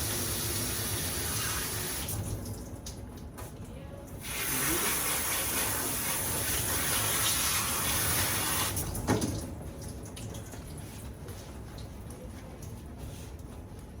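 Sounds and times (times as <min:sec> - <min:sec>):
water spraying from tap: 0:00.0 - 0:02.5, 0:04.2 - 0:11.1.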